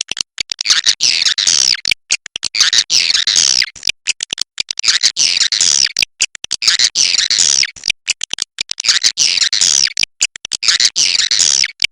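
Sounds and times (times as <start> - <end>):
sharp clicks: 0.0 - 11.9.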